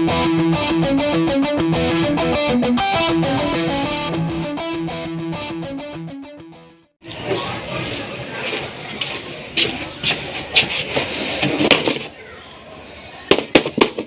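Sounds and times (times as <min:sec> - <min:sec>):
rapid guitar riff: 0:00.0 - 0:06.9.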